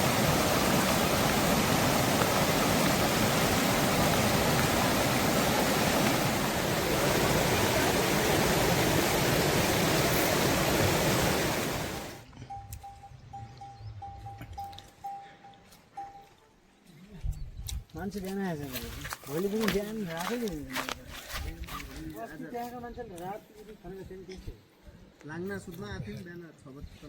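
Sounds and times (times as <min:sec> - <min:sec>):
water rushing: 0:00.0 - 0:12.2
faint high beeps: 0:12.2 - 0:16.6.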